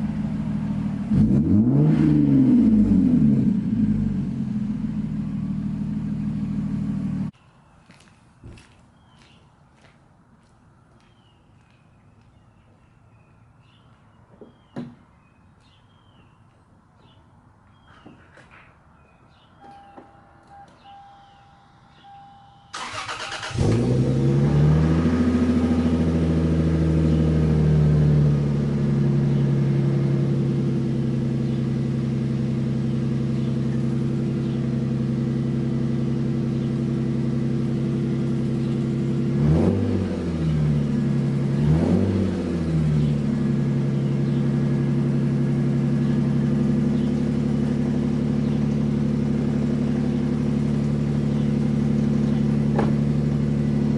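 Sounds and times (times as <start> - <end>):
car engine idling: 0.0 - 1.7, 3.5 - 7.3, 22.7 - 39.4, 42.5 - 53.9
engine throttle blips: 19.6 - 27.8.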